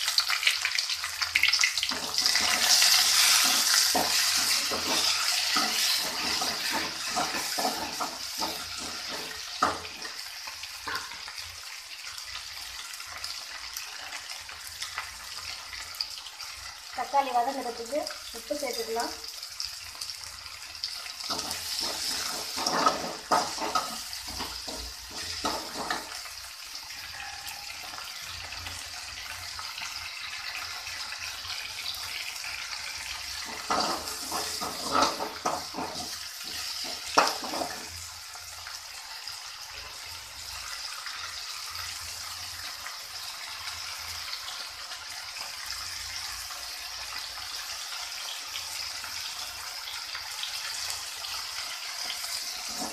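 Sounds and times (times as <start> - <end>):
onions sizzling in oil: 0.0 - 52.9
spatula scraping a pan: 1.8 - 11.3, 21.2 - 26.3, 33.3 - 38.1, 51.9 - 52.9.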